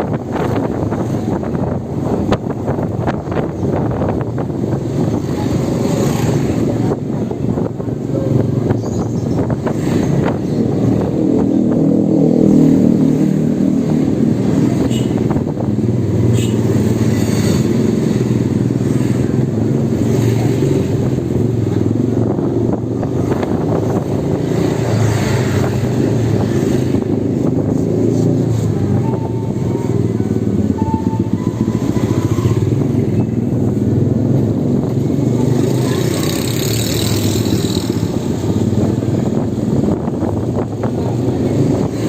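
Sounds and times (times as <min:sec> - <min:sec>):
electric motorbike low rumble: 0:25.7 - 0:42.0.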